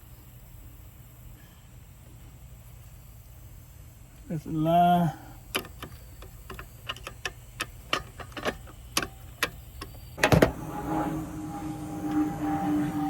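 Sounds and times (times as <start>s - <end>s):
steady hum: 0.0s - 13.0s
hand tools clicking and tapping: 5.5s - 10.0s.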